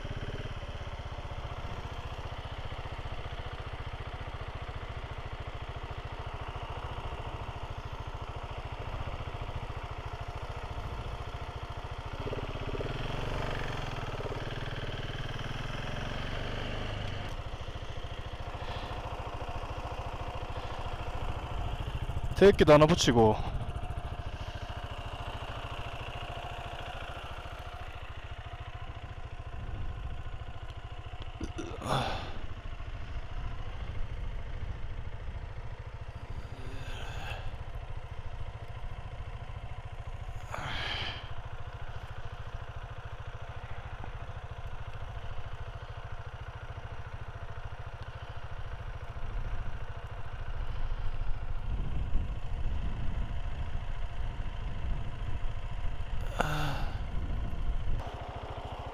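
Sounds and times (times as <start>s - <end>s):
motorcycle engine running: 0.0s - 58.9s
wind rumble on microphone: 51.6s - 53.8s, 57.0s - 58.0s.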